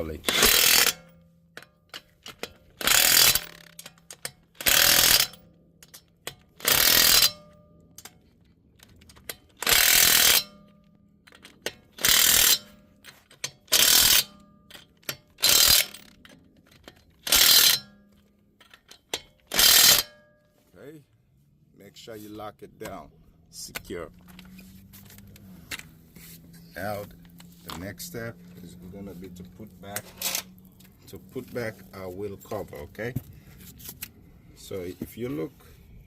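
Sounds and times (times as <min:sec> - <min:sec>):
impact wrench hammering: 0:00.2 - 0:07.6, 0:09.5 - 0:10.7, 0:11.6 - 0:16.1, 0:17.2 - 0:18.0, 0:18.6 - 0:20.2.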